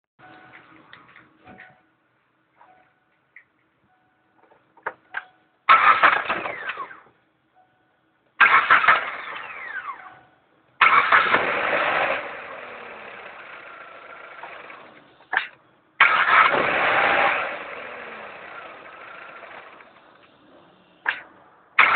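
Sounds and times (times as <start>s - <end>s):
car engine starting with whine: 5.7s - 7.1s, 8.4s - 10.2s, 10.8s - 21.9s
engine running steadily: 10.8s - 21.9s.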